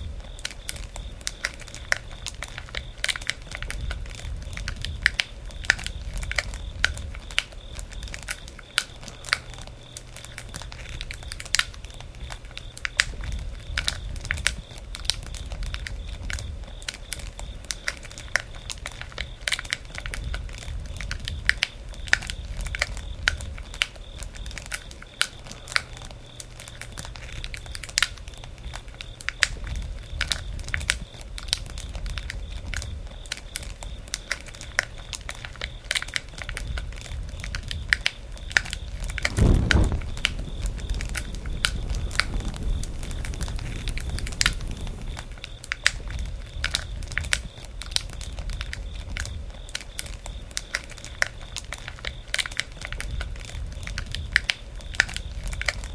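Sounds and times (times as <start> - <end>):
campfire crackling and popping: 39.2 - 45.5.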